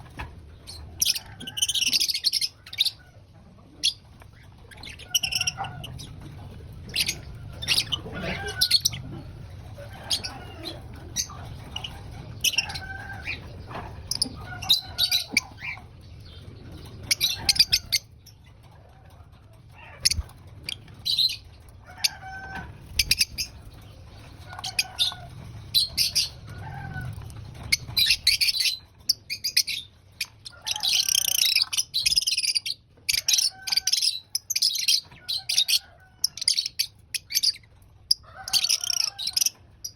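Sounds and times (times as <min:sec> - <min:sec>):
lovebirds chirping: 0:06.8 - 0:18.6.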